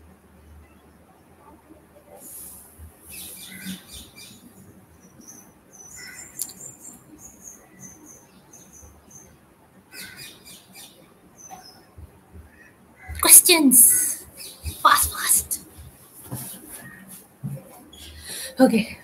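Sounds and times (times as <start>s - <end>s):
small bird chirping: 3.0s - 9.4s, 10.0s - 15.6s.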